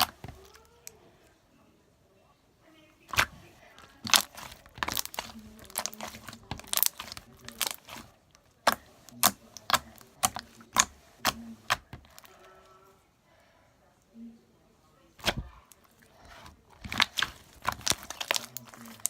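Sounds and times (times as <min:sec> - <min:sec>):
slime popping and crackling: 0:00.0 - 0:00.9, 0:03.1 - 0:12.3, 0:16.8 - 0:19.0.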